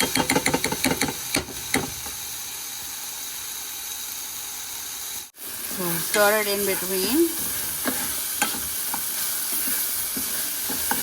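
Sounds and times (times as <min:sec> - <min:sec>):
food sizzling in hot oil: 0:00.0 - 0:11.0
utensil scraping against pot: 0:06.1 - 0:11.0.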